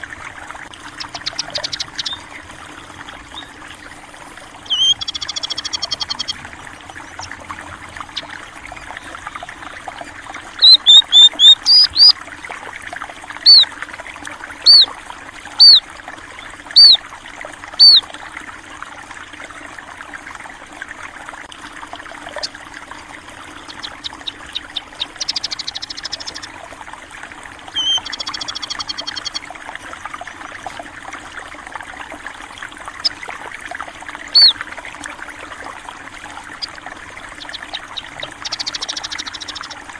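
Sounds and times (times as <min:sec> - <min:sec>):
stream water flowing: 0:00.0 - 0:39.9
buzzy bird trills: 0:00.8 - 0:03.9, 0:04.6 - 0:09.6, 0:10.4 - 0:12.1, 0:13.4 - 0:13.7, 0:14.6 - 0:14.9, 0:15.6 - 0:17.0, 0:17.8 - 0:18.1, 0:23.3 - 0:26.6, 0:27.7 - 0:29.5, 0:34.2 - 0:34.6, 0:36.4 - 0:39.9
birds chirping: 0:00.8 - 0:12.1, 0:13.4 - 0:13.7, 0:14.6 - 0:14.9, 0:15.6 - 0:17.0, 0:17.8 - 0:18.0, 0:23.4 - 0:26.6, 0:27.7 - 0:29.5, 0:34.2 - 0:34.6, 0:36.4 - 0:39.9.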